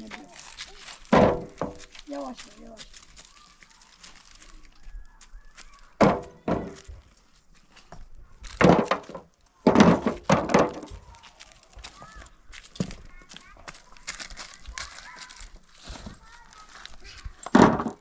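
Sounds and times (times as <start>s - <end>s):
heavy wooden thuds: 1.0s - 2.0s, 6.0s - 7.0s, 8.5s - 11.2s, 17.5s - 18.0s.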